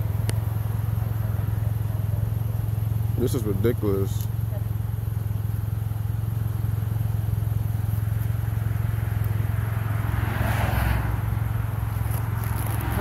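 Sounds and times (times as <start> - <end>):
car engine idling: 0.0 - 13.0
car passing: 8.0 - 13.0.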